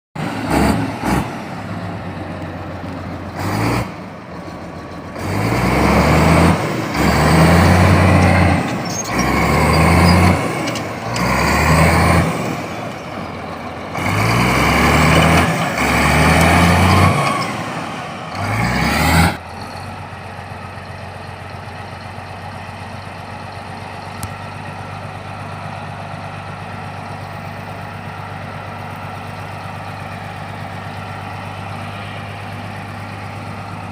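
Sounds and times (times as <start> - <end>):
bulldozer diesel engine revving: 0.2 - 33.9.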